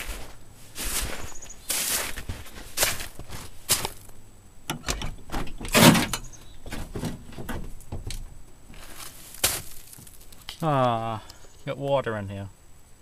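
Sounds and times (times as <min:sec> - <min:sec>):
handling noises: 0:00.0 - 0:11.7
truck door clicks and thumps: 0:04.7 - 0:08.6.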